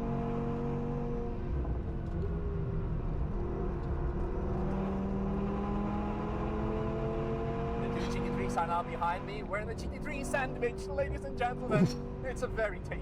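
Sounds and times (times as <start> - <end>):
car engine at speed: 0.0 - 12.3.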